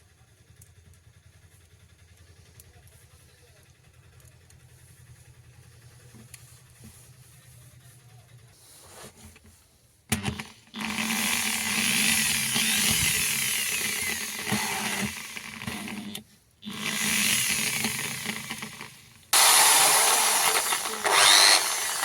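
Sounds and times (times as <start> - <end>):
electric drill running: 10.2 - 22.0.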